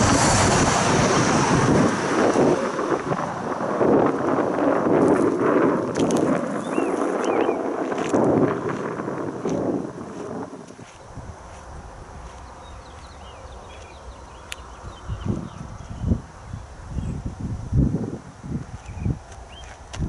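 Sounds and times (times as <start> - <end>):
train wheels rumbling on rails: 0.0 - 14.5
wind buffeting microphone: 0.0 - 20.0.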